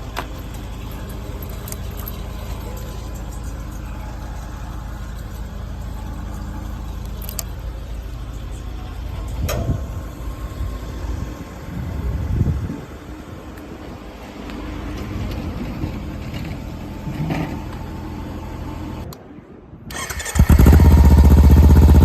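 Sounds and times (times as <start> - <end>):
motorcycle engine idling: 0.0 - 12.3, 20.2 - 22.0
exhaust surges: 0.0 - 19.1.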